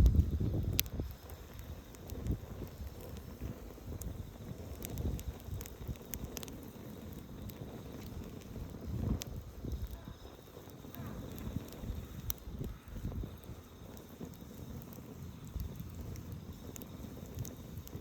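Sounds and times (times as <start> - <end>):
wind on microphone: 0.0 - 6.0, 8.1 - 13.6
campfire crackling and popping: 0.0 - 18.0
low rumbling of flame: 0.0 - 18.0.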